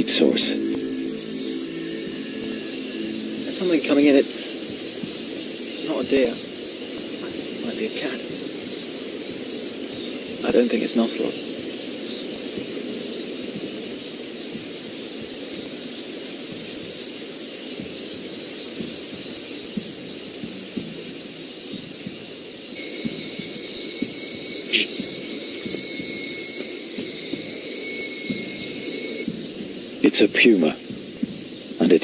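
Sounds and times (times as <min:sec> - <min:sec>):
insects trilling: 0:00.0 - 0:32.0
single insect call: 0:00.0 - 0:32.0
steady high insect tone: 0:00.0 - 0:32.0.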